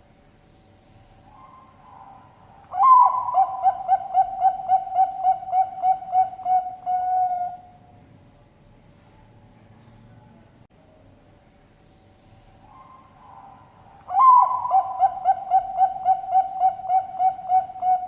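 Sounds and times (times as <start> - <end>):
dove cooing: 1.3 - 7.9, 12.7 - 18.0.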